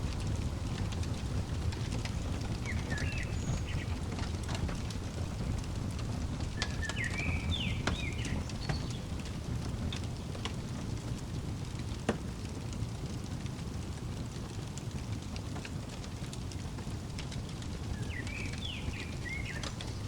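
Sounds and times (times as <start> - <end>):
fireplace crackling: 0.0 - 20.0
songbird chirping: 1.9 - 5.3, 6.4 - 10.4, 17.5 - 20.0.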